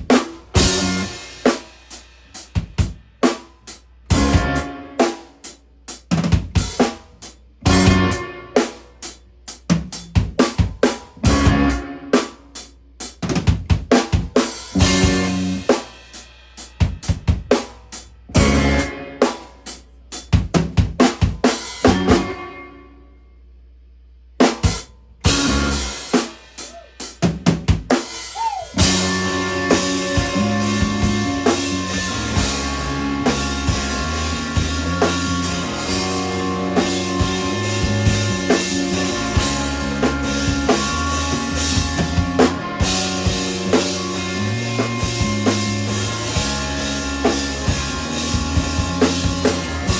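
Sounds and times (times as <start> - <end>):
drum kit hits: 0.0 - 1.7, 4.1 - 5.2, 7.7 - 8.7, 9.7 - 12.4, 13.2 - 16.0, 18.4 - 19.4, 20.4 - 22.4, 24.4 - 28.2, 28.8 - 49.9
instrumental emo band playing: 0.0 - 22.8, 24.4 - 49.9.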